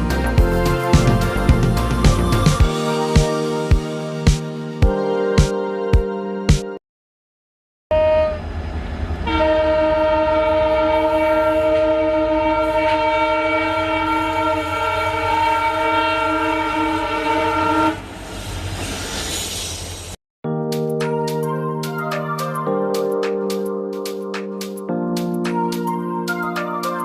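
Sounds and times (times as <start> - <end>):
horn chord blast: 9.2 - 18.0.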